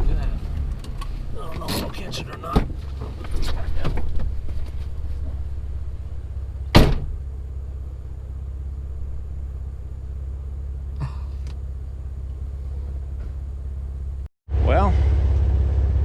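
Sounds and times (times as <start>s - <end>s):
car engine idling: 0.0s - 16.0s
sharp loud thump: 6.7s - 7.2s.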